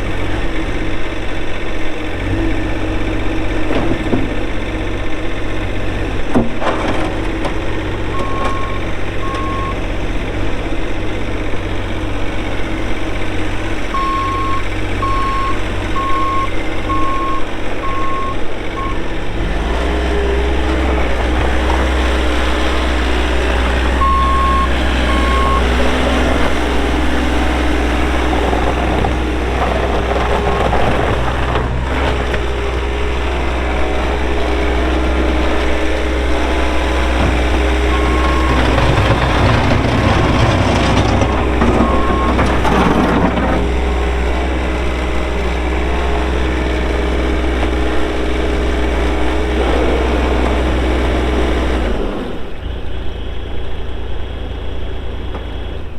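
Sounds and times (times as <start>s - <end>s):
diesel engine running: 0.0s - 55.9s
backup alarm beeping: 8.2s - 9.8s, 14.0s - 19.0s, 24.0s - 25.8s.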